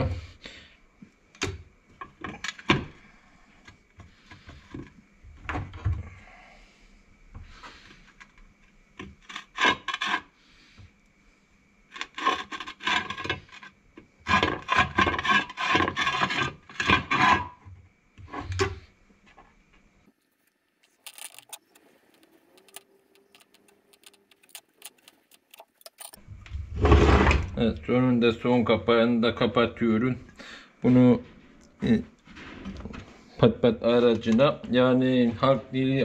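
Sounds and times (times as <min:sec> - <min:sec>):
fast repeated rasping and rubbing: 0:12.0 - 0:17.6.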